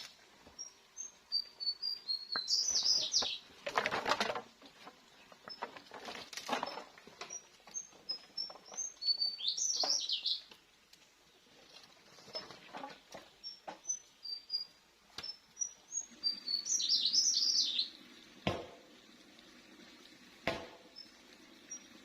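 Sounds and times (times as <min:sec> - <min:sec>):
small birds chirping: 0:00.0 - 0:03.6, 0:04.8 - 0:10.6, 0:11.2 - 0:18.0
sharp knocks: 0:18.4 - 0:18.9, 0:20.4 - 0:20.9.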